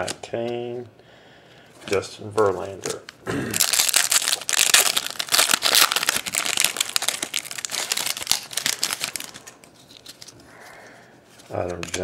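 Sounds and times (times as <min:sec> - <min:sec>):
foil wrapper tearing and crinkling: 0:03.6 - 0:10.3.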